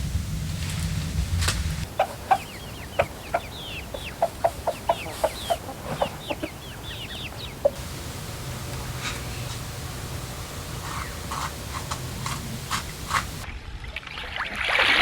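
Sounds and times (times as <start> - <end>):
chickens clucking: 0.2 - 13.4
high falling chirps: 1.8 - 13.4.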